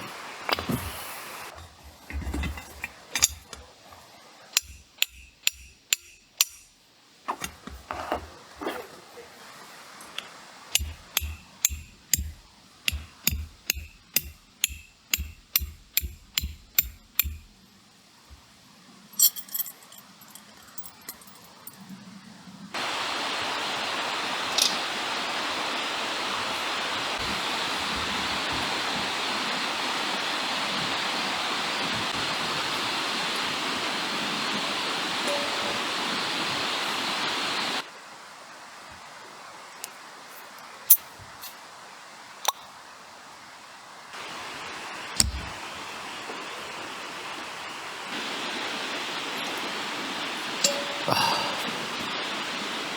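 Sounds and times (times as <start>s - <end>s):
light metallic clinks: 1.5s - 6.8s, 10.8s - 17.6s, 19.1s - 22.1s, 35.2s - 35.9s, 50.6s - 51.4s
sharp knocks with dull thuds: 10.8s - 17.6s.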